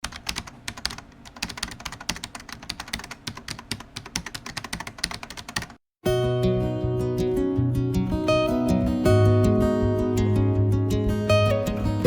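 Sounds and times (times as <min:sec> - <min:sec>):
keyboard typing clicks: 0:00.0 - 0:05.8.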